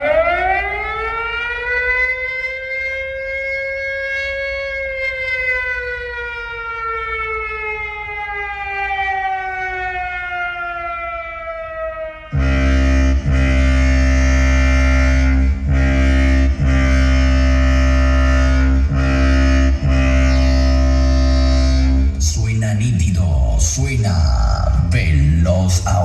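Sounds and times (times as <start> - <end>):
siren wailing: 0.0 - 26.0
low rumble: 13.1 - 26.0.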